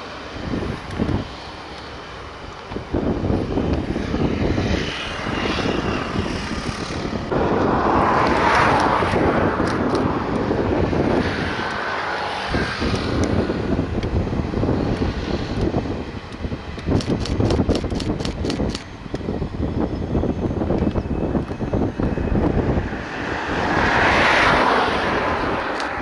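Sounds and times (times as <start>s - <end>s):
train wheels rumbling on rail: 5.7s - 26.0s.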